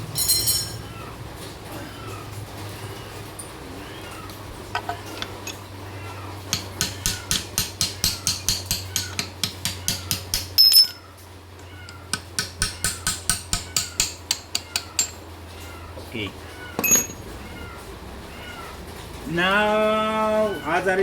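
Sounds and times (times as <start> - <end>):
loud metallic clink: 10.4 - 11.0, 16.8 - 17.2.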